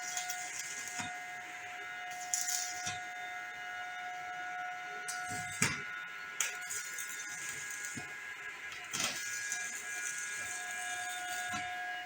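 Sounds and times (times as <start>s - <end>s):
welding arc crackling: 0.0s - 3.2s, 5.1s - 5.8s, 6.4s - 11.8s.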